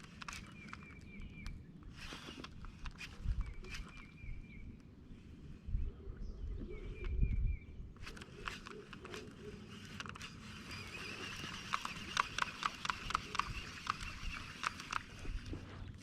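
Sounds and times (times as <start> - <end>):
fishing reel clicking: 0.0 - 4.2, 8.0 - 15.5.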